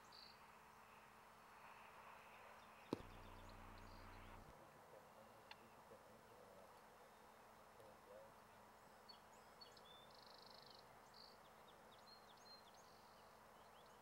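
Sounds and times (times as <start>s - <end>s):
small bird chirps: 2.9s - 4.5s.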